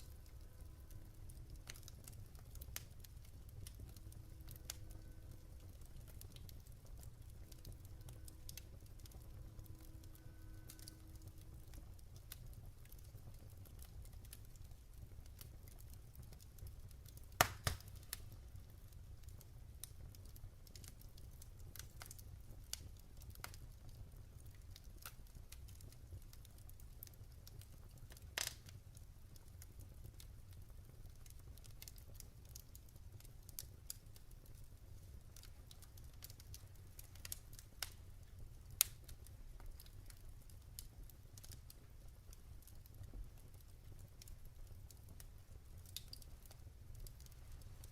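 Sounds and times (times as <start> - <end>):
low steady rumble: 0.0 - 13.6
log fire crackling: 0.0 - 47.9.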